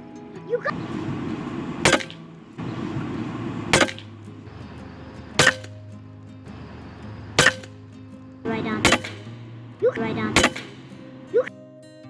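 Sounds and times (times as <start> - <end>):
steady low hum: 0.7 - 11.0
air rifle shots: 1.8 - 2.2, 2.9 - 4.2, 5.4 - 5.8, 7.3 - 7.8, 8.5 - 9.4, 10.3 - 10.9.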